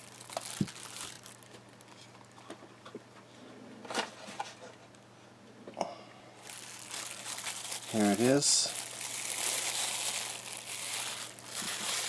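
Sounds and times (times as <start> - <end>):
light rustling of packaging: 0.0 - 2.7, 6.4 - 12.0.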